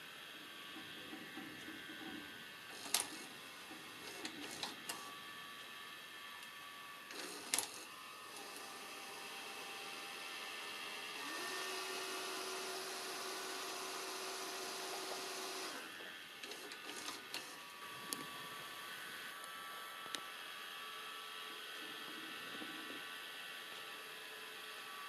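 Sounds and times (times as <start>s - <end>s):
tape mechanism motors whirring: 0.6s - 20.4s
sharp mechanical clicks: 2.8s - 3.2s.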